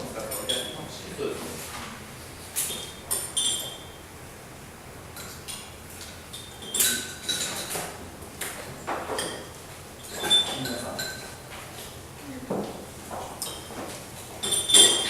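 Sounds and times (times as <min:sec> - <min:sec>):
cups and spoons clinking: 0:00.3 - 0:00.9, 0:02.6 - 0:04.0, 0:06.3 - 0:07.9, 0:09.0 - 0:11.4, 0:13.4 - 0:13.8, 0:14.4 - 0:15.0.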